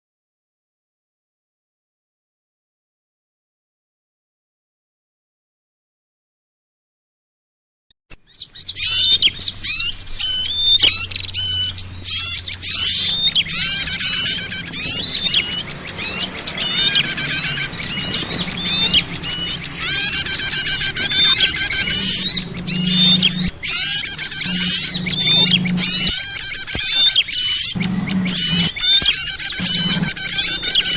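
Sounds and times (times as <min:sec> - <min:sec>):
songbirds chirping and trilling: 0:08.2 - 0:30.9.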